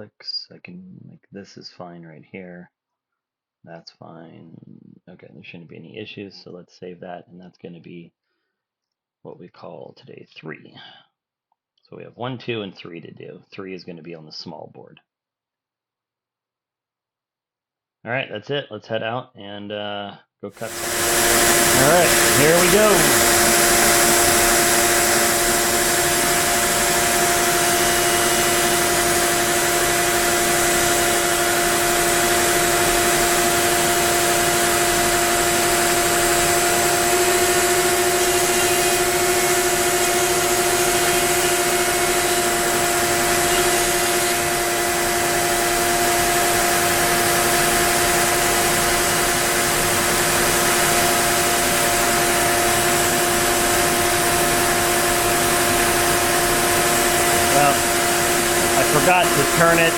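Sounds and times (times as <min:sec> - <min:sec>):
cnc router cutting wood: 0:20.6 - 0:59.9.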